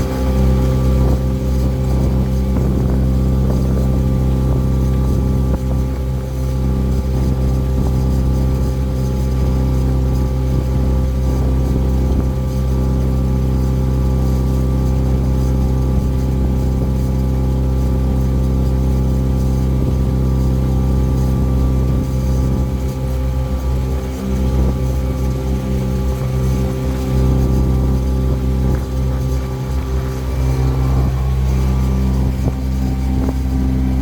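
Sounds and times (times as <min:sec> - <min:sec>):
boat engine humming: 0:00.0 - 0:34.0.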